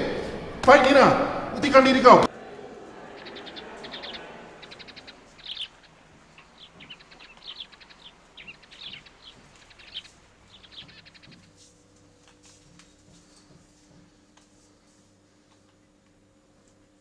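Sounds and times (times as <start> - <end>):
faint steady hum: 0.0 - 17.0
birds chirping and trilling: 2.7 - 14.0.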